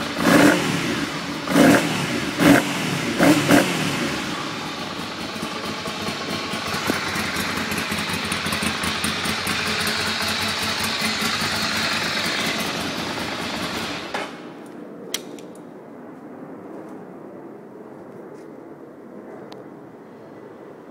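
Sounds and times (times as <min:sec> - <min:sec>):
motorcycle engine running: 0:00.0 - 0:14.6
sharp click: 0:14.6 - 0:15.7.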